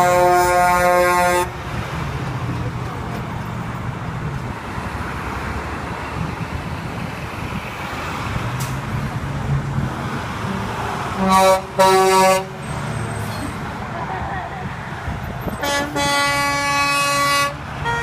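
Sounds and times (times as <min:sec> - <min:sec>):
truck horn blasts: 0:00.0 - 0:01.6, 0:11.2 - 0:12.6, 0:15.6 - 0:18.0
truck engines running: 0:00.0 - 0:18.0.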